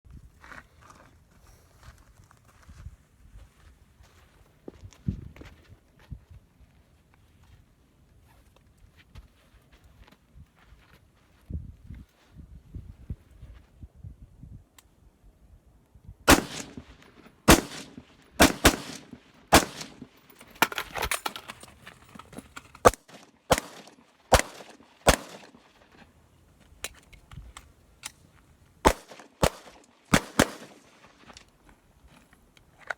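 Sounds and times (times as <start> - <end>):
gunshots with echo: 16.3 - 20.2, 22.9 - 25.6, 28.9 - 31.0.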